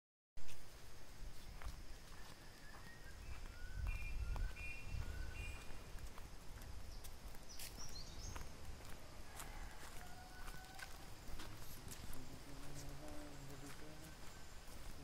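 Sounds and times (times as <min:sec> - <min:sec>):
birds whistling: 0:02.0 - 0:05.8.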